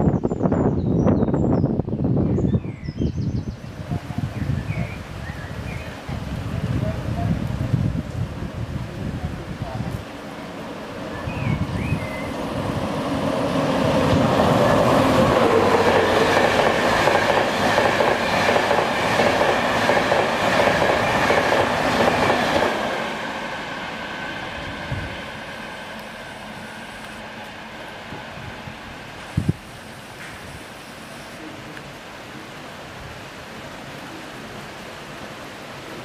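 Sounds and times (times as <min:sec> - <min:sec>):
diesel train engine whining: 0:10.3 - 0:31.4.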